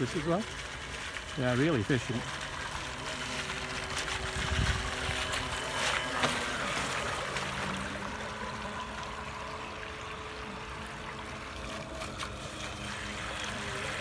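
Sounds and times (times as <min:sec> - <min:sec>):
faint electric motor hum: 0:00.0 - 0:14.0
water lapping and trickling: 0:00.0 - 0:14.0.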